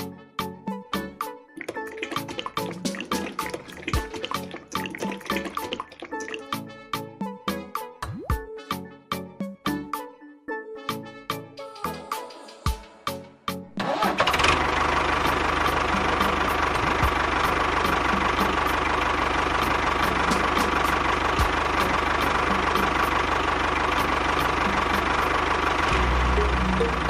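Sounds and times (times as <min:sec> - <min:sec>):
tractor engine rumbling: 0:01.8 - 0:06.3, 0:13.8 - 0:27.0.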